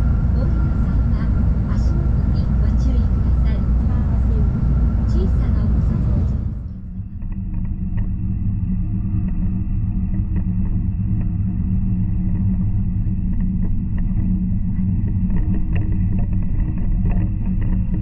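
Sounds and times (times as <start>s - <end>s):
train rumbling at speed: 0.0s - 18.0s
faint ticks and rattles: 7.2s - 18.0s.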